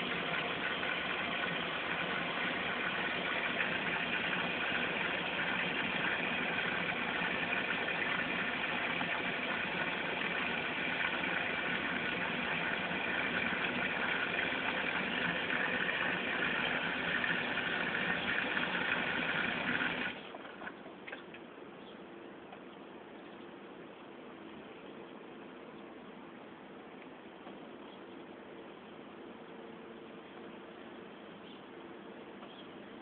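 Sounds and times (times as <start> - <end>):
washing machine running: 0.0 - 20.7.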